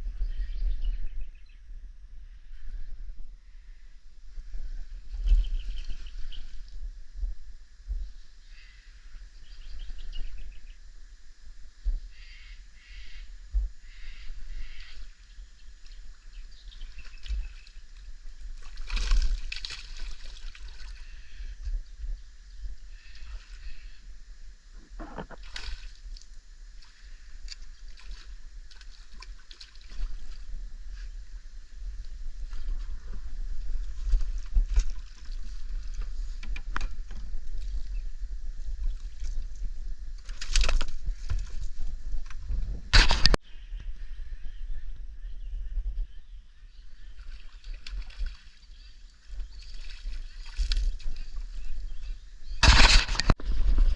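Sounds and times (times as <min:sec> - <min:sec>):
steady low rumble: 0:00.0 - 0:47.2
water sloshing and trickling: 0:16.6 - 0:21.4, 0:24.8 - 0:31.1, 0:31.9 - 0:37.9, 0:47.0 - 0:52.0
water splash: 0:18.6 - 0:21.0, 0:24.9 - 0:26.1.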